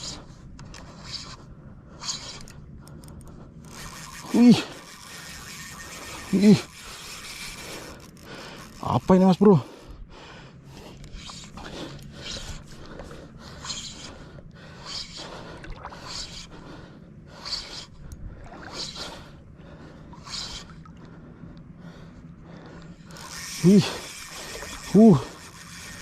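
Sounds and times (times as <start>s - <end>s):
heavy breathing: 0.0s - 8.8s, 9.5s - 26.0s.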